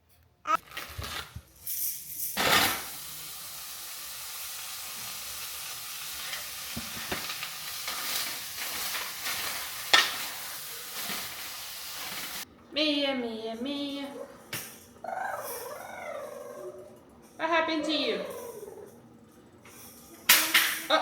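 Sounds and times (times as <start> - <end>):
meat sizzling in a frying pan: 2.4 - 12.4.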